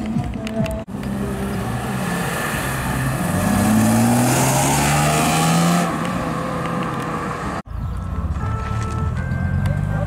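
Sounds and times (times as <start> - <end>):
car engine accelerating: 0.9 - 7.7.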